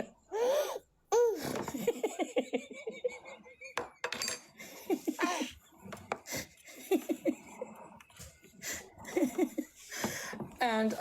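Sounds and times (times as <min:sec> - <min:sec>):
soft giggling: 0:01.6 - 0:03.8, 0:04.6 - 0:05.6, 0:06.3 - 0:10.0.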